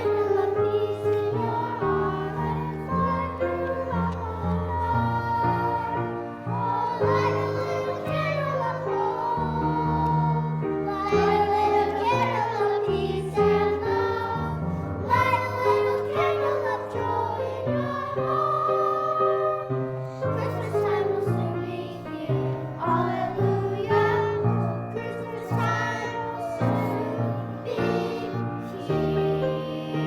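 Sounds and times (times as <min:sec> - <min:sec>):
voices singing: 0:00.0 - 0:30.0.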